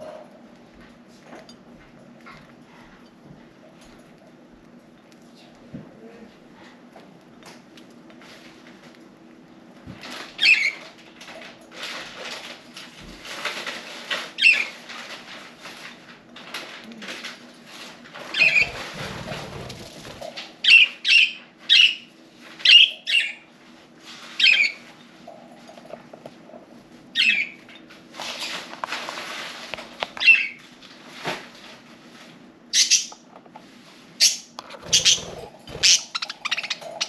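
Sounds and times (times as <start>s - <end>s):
wing flutters and rustling: 9.7s - 20.8s, 28.1s - 32.4s, 34.6s - 37.0s
budgerigars chirping: 34.8s - 37.0s.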